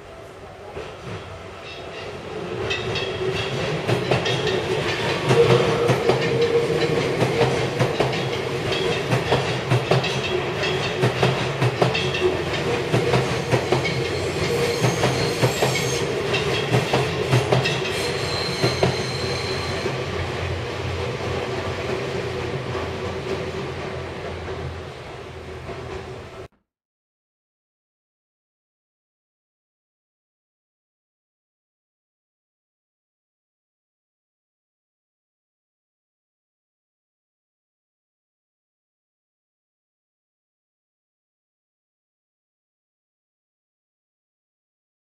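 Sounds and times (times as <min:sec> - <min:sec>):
electric trains passing: 0:00.0 - 0:26.5
high-pitched wheel squeal: 0:14.1 - 0:16.1, 0:17.8 - 0:20.0.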